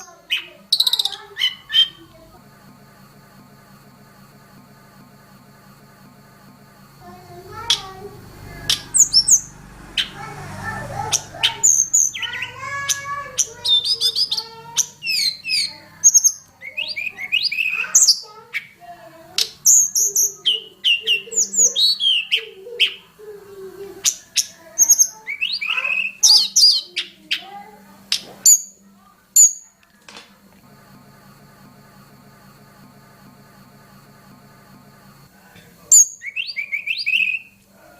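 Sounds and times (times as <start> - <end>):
bird singing fast varied song: 0.0 - 2.0, 7.6 - 10.2, 10.8 - 18.8, 19.4 - 23.1, 24.0 - 27.4, 35.9 - 37.6.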